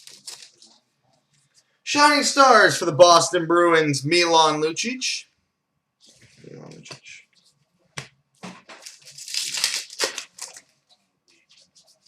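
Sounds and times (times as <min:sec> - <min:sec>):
foil wrapper tearing and crinkling: 0:00.0 - 0:00.7, 0:08.8 - 0:10.7
foil rustling: 0:00.0 - 0:00.8, 0:08.7 - 0:12.0.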